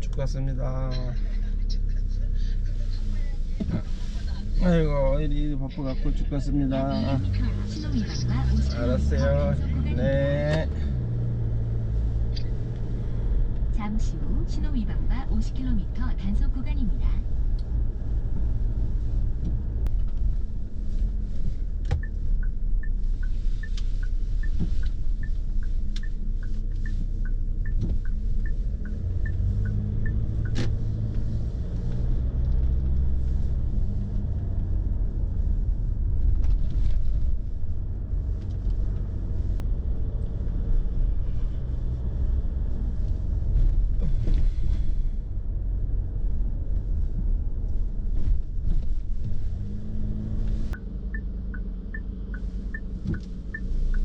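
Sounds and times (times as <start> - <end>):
car engine and road rumble: 0.0 - 54.0
turn signal ticking: 5.7 - 36.4, 48.8 - 54.0.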